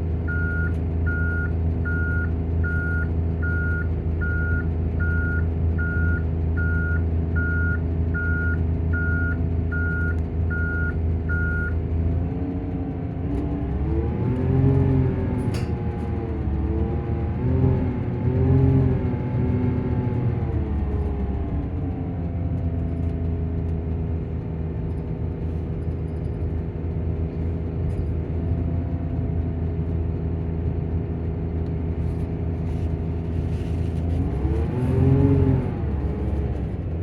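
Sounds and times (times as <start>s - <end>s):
bus diesel engine: 0.0s - 37.0s
reversing alarm beeping: 0.3s - 11.8s.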